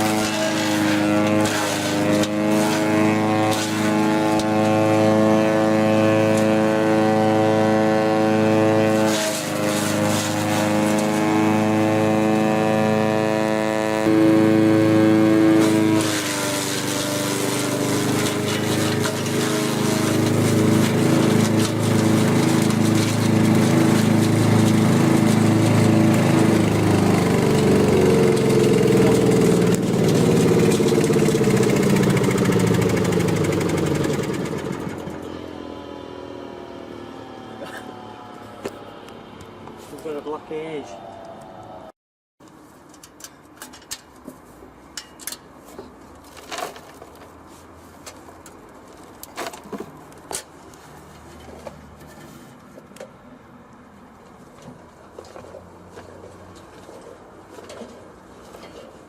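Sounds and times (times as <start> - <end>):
wood chipper engine running: 0.0 - 39.2.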